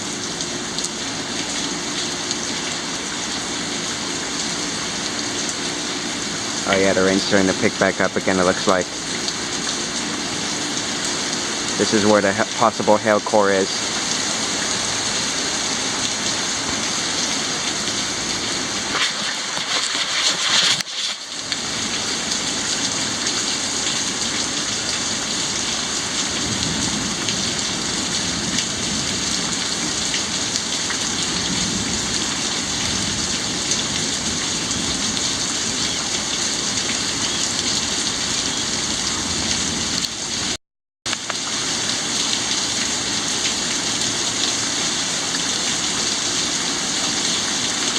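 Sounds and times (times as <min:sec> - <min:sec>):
rain falling steadily: 0:00.0 - 0:47.9.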